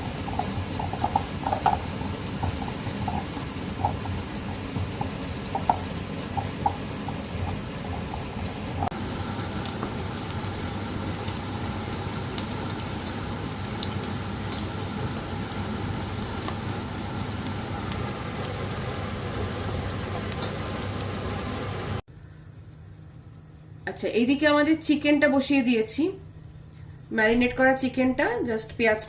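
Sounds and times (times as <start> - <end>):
food sizzling in a pan: 8.9 - 22.0.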